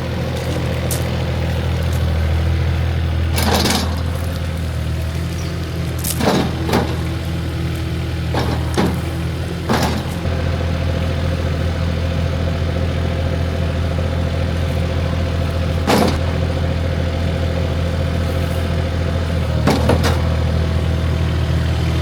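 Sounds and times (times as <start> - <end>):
engine idling: 0.0 - 22.0
short knocks and clatters: 3.3 - 10.3, 15.9 - 16.3, 19.5 - 20.4.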